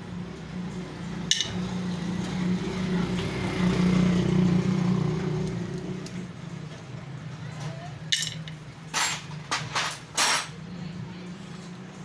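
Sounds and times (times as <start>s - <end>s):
vehicle engine humming: 0.0s - 8.9s.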